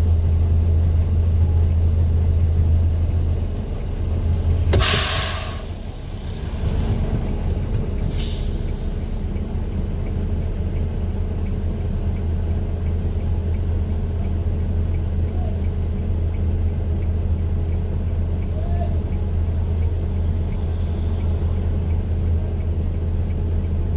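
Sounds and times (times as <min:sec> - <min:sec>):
large vehicle engine hum: 0:00.0 - 0:23.9
air brake hiss: 0:04.8 - 0:05.8, 0:08.1 - 0:09.2
faint regular ticking: 0:08.6 - 0:23.9.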